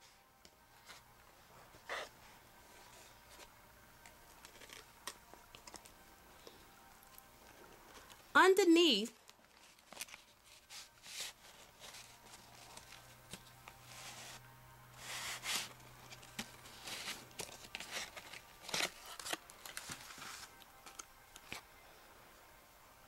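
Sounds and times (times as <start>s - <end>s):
faint low hum: 0.0s - 23.0s
paper rustling and sliding: 9.5s - 14.4s, 15.0s - 21.6s.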